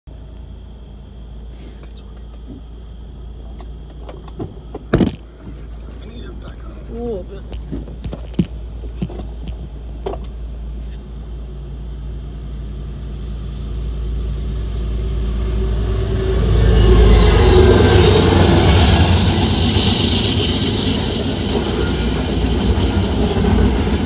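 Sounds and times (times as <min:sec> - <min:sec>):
diesel locomotives passing: 0:08.6 - 0:24.0
container cars rolling: 0:16.6 - 0:24.0.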